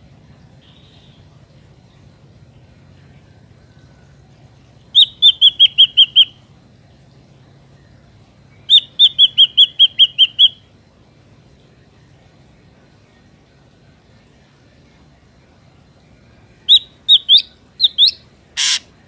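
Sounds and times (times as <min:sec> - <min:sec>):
bird whistling calls: 0:04.9 - 0:06.4, 0:08.6 - 0:10.6, 0:16.7 - 0:18.9.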